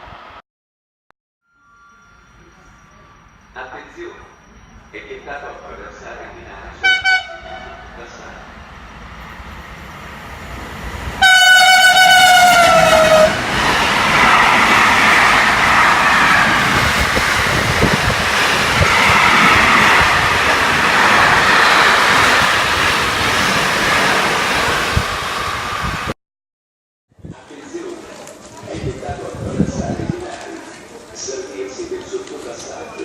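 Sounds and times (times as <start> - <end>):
train wheels rumbling on rail: 6.5 - 26.1
train horn: 6.8 - 7.8, 11.2 - 13.4.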